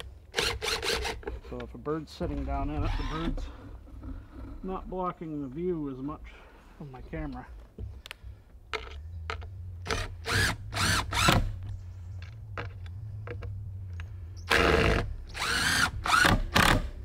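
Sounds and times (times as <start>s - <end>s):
cordless drill driving screws: 0.3s - 1.3s, 9.8s - 11.6s, 14.5s - 17.0s.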